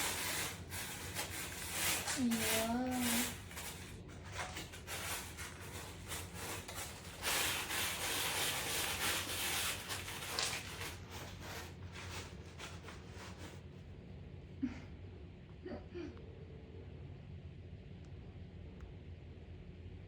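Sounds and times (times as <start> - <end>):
scratchy rubbing and rustling: 0.0 - 13.8.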